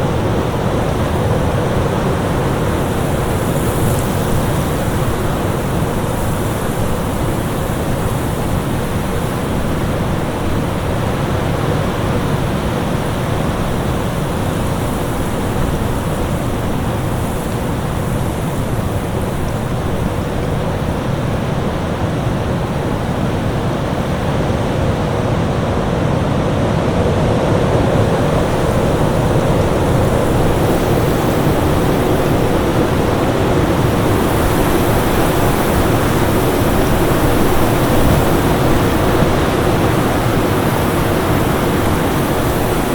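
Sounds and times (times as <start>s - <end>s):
storm wind rushing: 26.7s - 42.9s.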